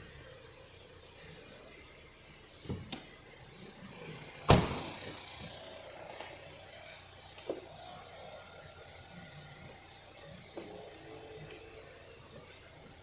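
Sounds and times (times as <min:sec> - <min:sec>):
loud slam: 0:04.5 - 0:05.1.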